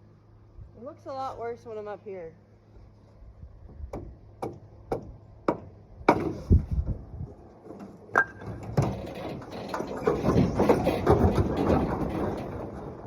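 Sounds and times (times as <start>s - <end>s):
sharp wooden knocks: 3.9s - 6.4s, 7.7s - 13.0s.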